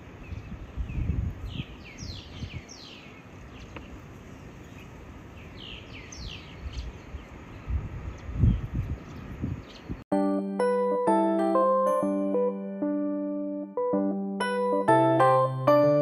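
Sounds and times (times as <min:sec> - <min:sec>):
bird chirping: 0:00.2 - 0:10.0.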